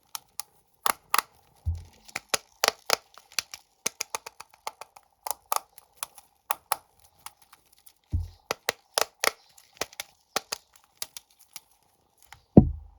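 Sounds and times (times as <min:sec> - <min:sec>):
plastic packaging crinkling: 0:01.3 - 0:12.5
dull thump: 0:01.7 - 0:01.9, 0:08.2 - 0:08.4, 0:12.6 - 0:12.9.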